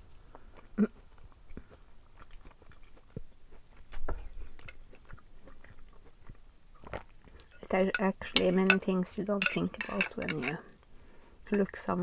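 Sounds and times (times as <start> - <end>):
wet chewing and mouth smacks: 0.0 - 7.6.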